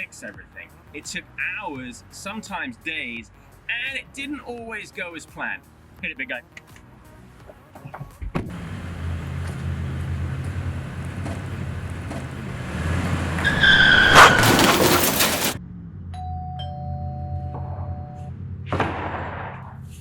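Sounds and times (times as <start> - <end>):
truck engine running: 8.5 - 16.1
tyres squealing: 8.6 - 15.6
two-tone chime: 16.2 - 18.3.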